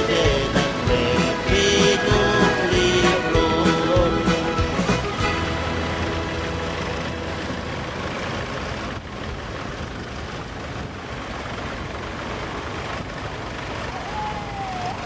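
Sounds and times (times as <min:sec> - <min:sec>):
tractor engines running: 0:00.0 - 0:15.0.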